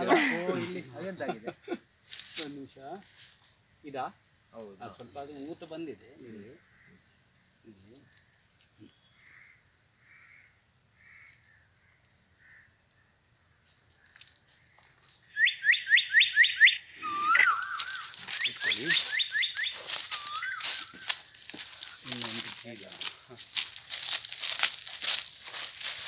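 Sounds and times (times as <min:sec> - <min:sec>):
birds chirping: 0:00.0 - 0:26.0
fast rising bird chirps: 0:15.2 - 0:21.4.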